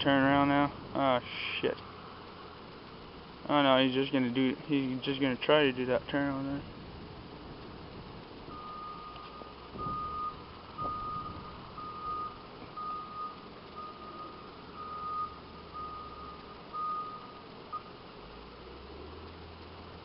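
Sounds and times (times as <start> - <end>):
reversing alarm beeps: 8.5 - 17.9.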